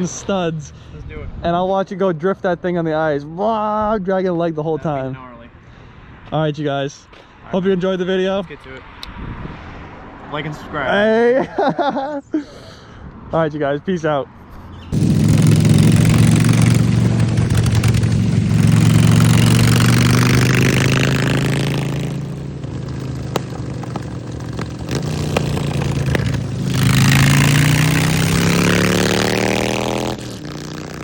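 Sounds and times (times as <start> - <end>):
wind noise: 9.0 - 10.2
motorcycle engine revving: 14.9 - 31.0.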